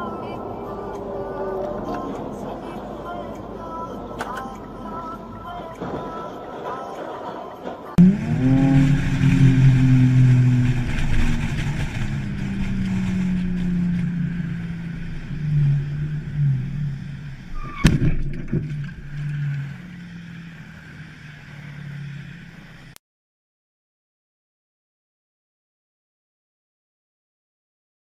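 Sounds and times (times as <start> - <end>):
car engine running: 7.9 - 23.0.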